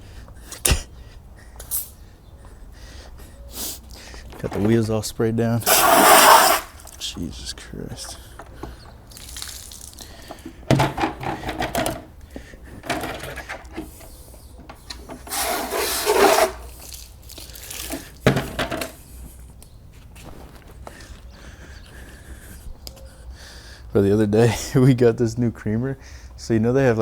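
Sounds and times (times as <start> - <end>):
scrubbing wet car wheels: 5.6 - 7.1, 8.0 - 10.5, 15.2 - 18.2
water spray hiss: 5.7 - 6.9.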